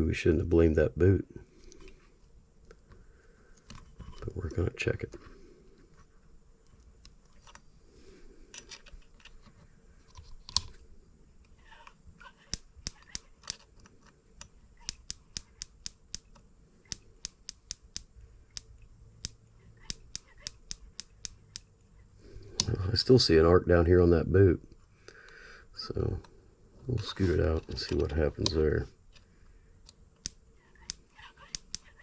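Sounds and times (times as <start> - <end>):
ignition spark snapping ticks: 12.5 - 13.6, 14.4 - 21.7, 30.2 - 31.9
light handling clicks: 27.6 - 32.0.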